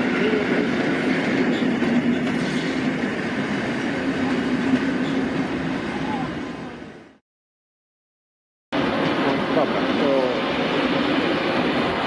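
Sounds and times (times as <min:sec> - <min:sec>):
train wheels clattering over rails: 0:00.0 - 0:05.4.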